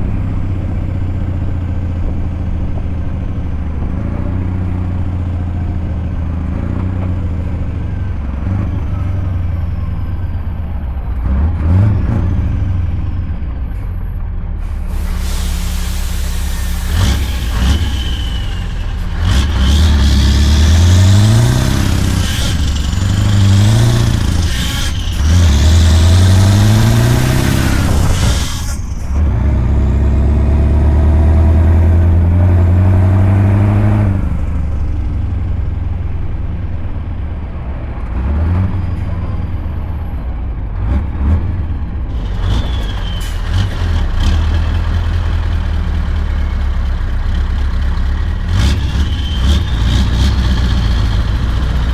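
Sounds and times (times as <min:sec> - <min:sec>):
truck engine accelerating: 0:00.0 - 0:51.9.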